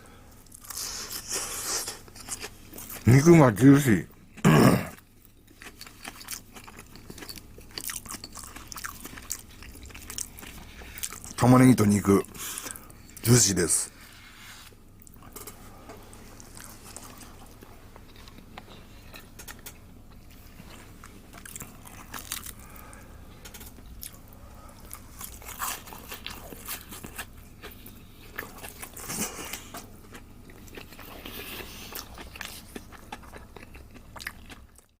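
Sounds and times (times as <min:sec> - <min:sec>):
chewing crispy fried food: 0:00.3 - 0:04.2, 0:04.9 - 0:13.3, 0:15.0 - 0:35.0
crispy crust crunching: 0:24.8 - 0:34.9.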